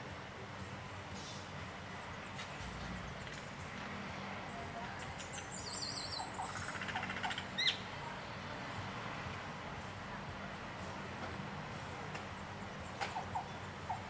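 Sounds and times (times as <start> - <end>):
background hiss: 0.0 - 6.7, 7.4 - 14.0
birds calling: 2.0 - 8.0, 11.8 - 14.0
sharp rising bird chirp: 5.2 - 7.9.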